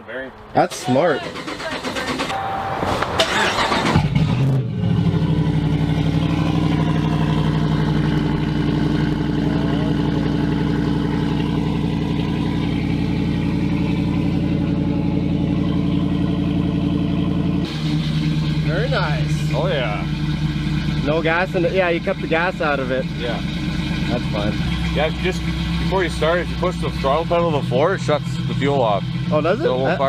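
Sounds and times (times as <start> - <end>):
engine idling: 0.7 - 2.5, 3.2 - 30.0
starter motor cranking: 1.0 - 2.4, 3.2 - 4.4.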